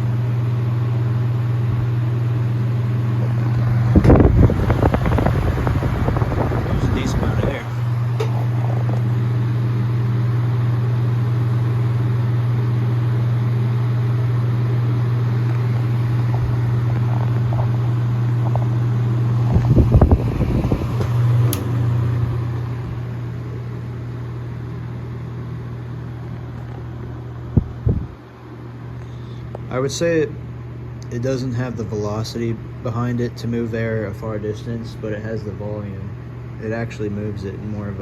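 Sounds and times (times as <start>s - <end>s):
electric fan motor humming: 0.0s - 38.0s
air rushing from fan blades: 1.3s - 30.1s.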